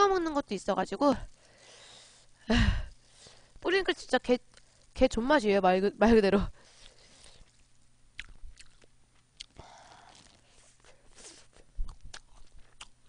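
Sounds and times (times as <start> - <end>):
soft chewing with wet clicks: 4.5 - 4.8, 6.8 - 9.6, 11.6 - 13.0.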